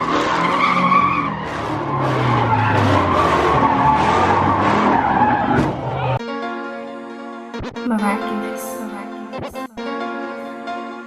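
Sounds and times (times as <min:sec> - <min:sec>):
car engine running hard: 0:00.0 - 0:06.2
car tyres squealing: 0:00.0 - 0:06.2.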